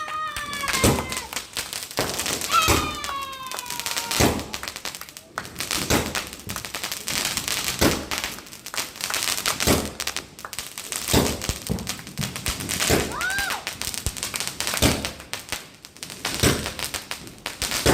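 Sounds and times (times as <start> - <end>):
firework loud bangs: 0.0 - 4.8, 5.6 - 8.4, 9.5 - 10.2, 11.0 - 14.1, 14.8 - 15.2, 16.2 - 17.9
firework small cracks: 0.0 - 17.9.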